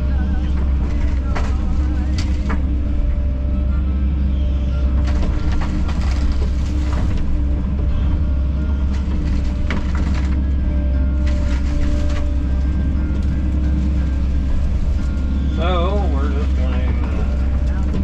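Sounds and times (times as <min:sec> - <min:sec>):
excavator diesel engine running: 0:00.0 - 0:18.0
machine knocks and clanks: 0:04.9 - 0:13.3, 0:16.3 - 0:18.0.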